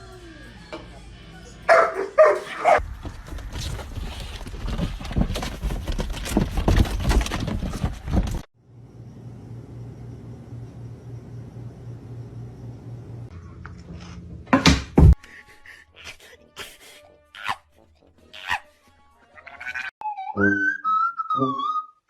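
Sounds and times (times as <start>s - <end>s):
dog barking: 1.7s - 2.8s
rustling and knocking: 2.8s - 8.5s.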